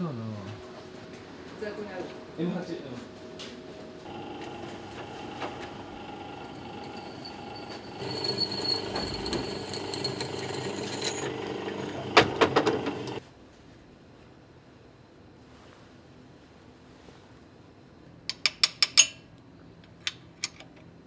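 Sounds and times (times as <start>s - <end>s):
workshop machine running: 4.0s - 13.2s.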